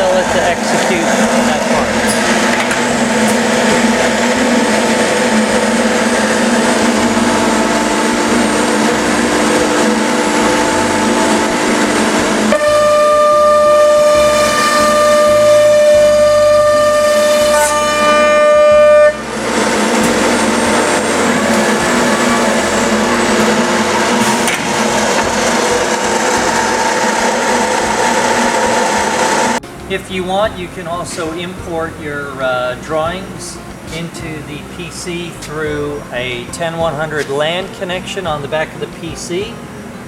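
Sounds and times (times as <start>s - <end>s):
cnc machine running: 0.0s - 29.6s
high-pitched machine whine: 0.0s - 29.9s.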